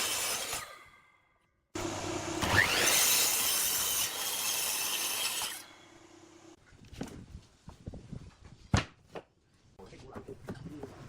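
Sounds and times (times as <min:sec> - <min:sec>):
power tool cutting wood: 0:00.0 - 0:00.7, 0:01.8 - 0:06.6
motor hum: 0:01.8 - 0:03.5.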